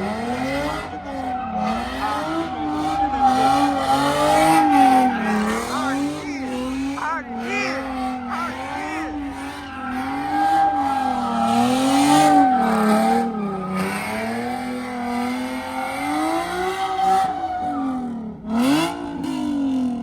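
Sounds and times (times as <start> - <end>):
car engine revving: 0.0 - 20.0
tyres squealing: 0.1 - 14.5.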